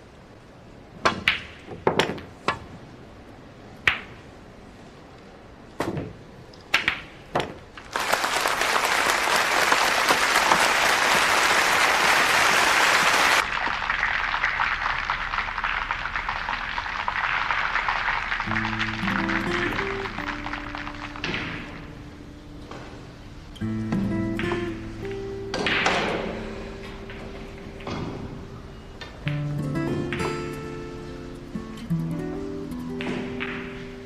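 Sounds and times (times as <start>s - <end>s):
audience applause: 7.9s - 21.3s
billiard balls clacking: 33.0s - 33.9s.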